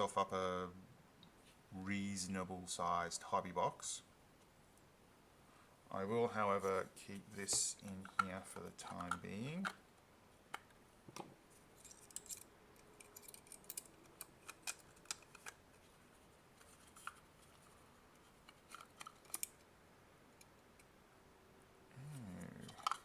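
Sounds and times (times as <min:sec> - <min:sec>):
plastic parts clicking and scraping: 0:07.4 - 0:09.8, 0:11.8 - 0:15.9, 0:16.6 - 0:19.6, 0:22.6 - 0:23.0.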